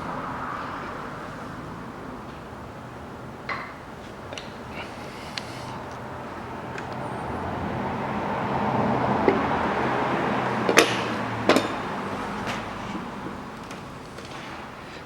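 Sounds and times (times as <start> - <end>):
hiss: 4.8 - 5.8.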